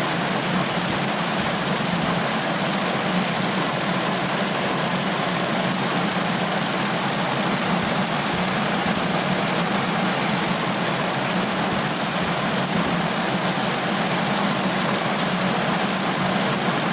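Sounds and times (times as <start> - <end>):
rain on a car roof: 0.0 - 16.9.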